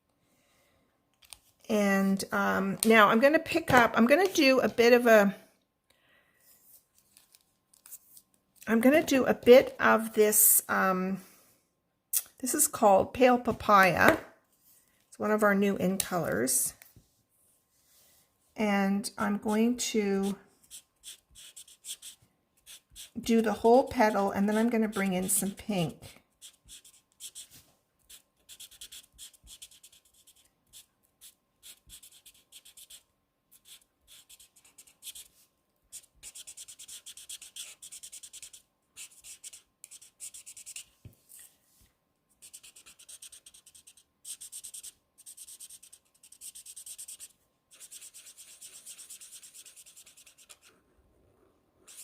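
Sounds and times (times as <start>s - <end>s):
marker scratching on cardstock: 20.2s - 23.2s, 24.4s - 35.3s, 35.9s - 40.9s, 42.4s - 50.7s.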